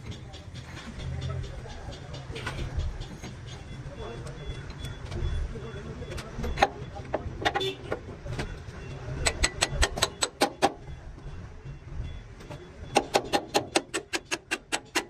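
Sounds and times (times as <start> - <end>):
hammer strikes: 9.2 - 11.0, 12.4 - 15.0.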